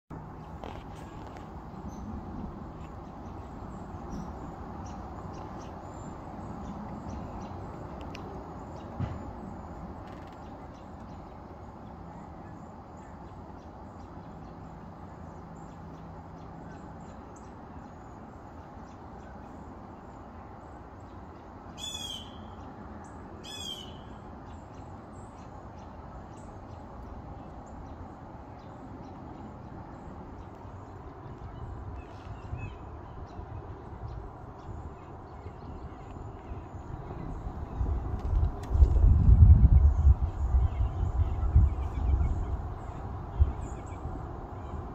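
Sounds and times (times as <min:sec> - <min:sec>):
outdoor background noise: 0:00.1 - 0:44.9
high downward bird calls: 0:21.8 - 0:22.7, 0:23.4 - 0:24.3.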